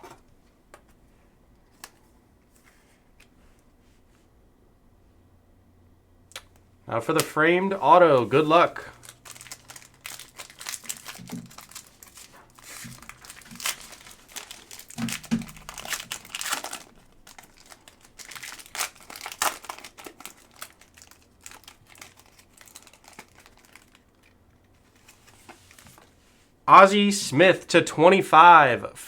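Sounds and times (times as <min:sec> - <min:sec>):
packaging crinkling and tearing: 0:08.2 - 0:26.1.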